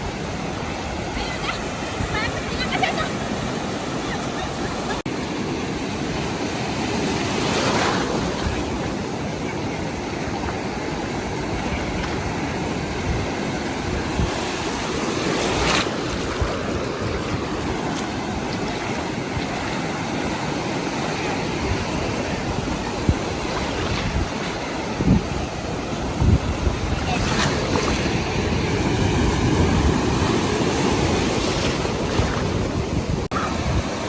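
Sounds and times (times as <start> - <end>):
ocean surf washing onto beach: 0.0 - 34.0
waves breaking: 0.0 - 34.0.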